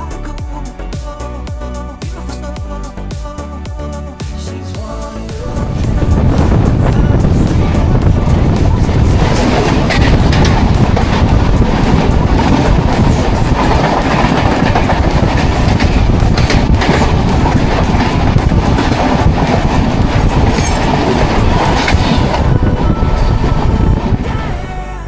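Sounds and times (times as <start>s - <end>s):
train wheels rumbling on rails: 5.3s - 24.6s.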